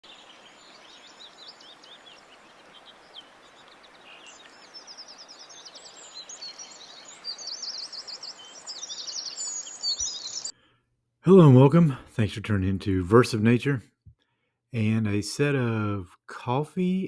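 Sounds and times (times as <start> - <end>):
birds chirping and twittering: 0.0 - 10.8.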